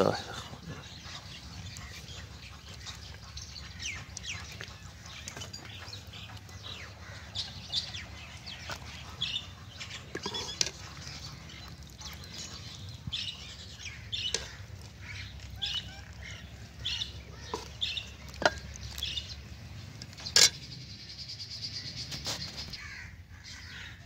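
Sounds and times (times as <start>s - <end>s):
birds chirping: 0.0s - 24.0s
metal ladle clinking on pot: 10.1s - 10.8s, 17.5s - 18.8s, 20.0s - 20.6s.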